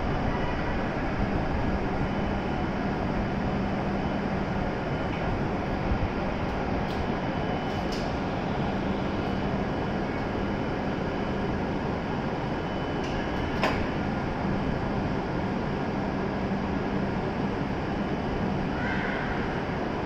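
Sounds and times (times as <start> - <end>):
stopped train humming: 0.0 - 18.7.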